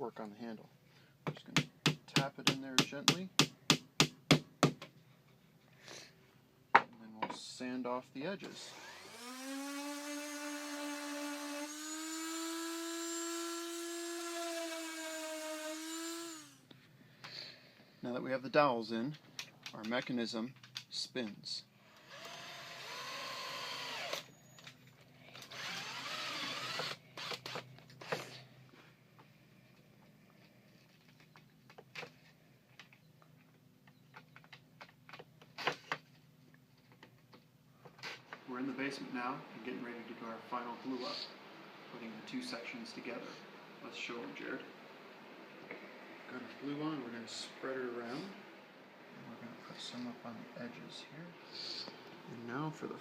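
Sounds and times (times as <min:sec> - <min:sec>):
electric sander whining: 0:08.6 - 0:16.6, 0:25.5 - 0:27.3.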